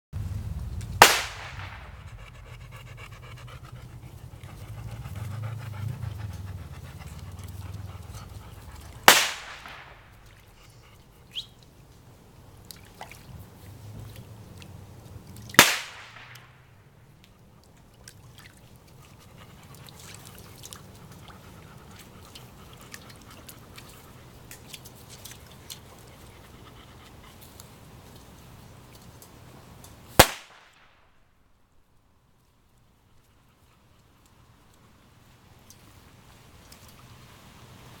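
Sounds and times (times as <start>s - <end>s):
loud sharp bangs with echo: 1.0s - 2.0s, 9.1s - 10.0s
dog panting: 1.7s - 11.3s, 18.9s - 27.7s.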